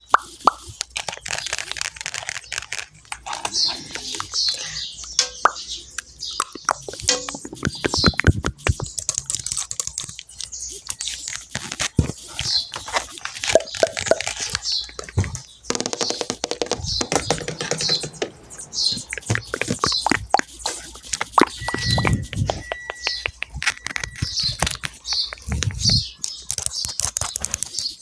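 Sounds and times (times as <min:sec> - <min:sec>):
keyboard typing clicks: 0:15.7 - 0:19.9, 0:21.2 - 0:28.0.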